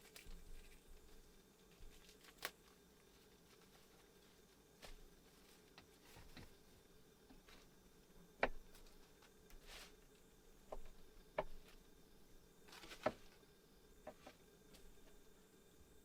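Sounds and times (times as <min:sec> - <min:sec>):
soft rustling: 0:00.0 - 0:07.8, 0:08.7 - 0:11.0.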